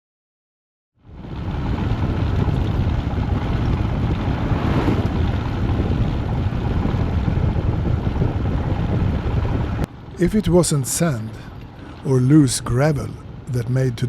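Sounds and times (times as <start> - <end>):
motorcycle running noise: 1.0 - 10.0
wind buffeting microphone: 1.0 - 14.0.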